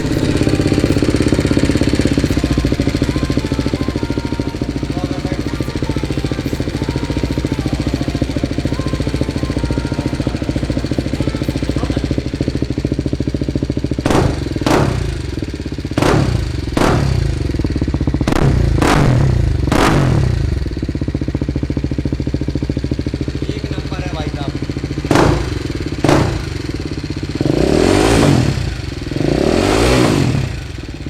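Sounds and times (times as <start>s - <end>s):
motorcycle engine idling: 0.0s - 31.0s
motorcycle engine revving: 0.0s - 31.0s.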